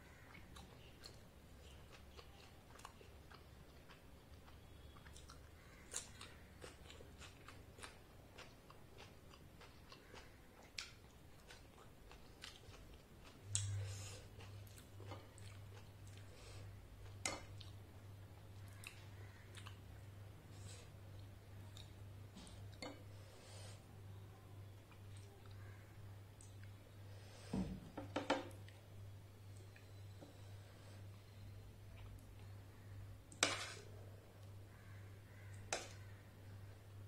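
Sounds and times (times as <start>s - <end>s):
mouth chewing food: 0.1s - 23.1s, 24.1s - 26.9s
spoon scooping food: 33.3s - 34.5s.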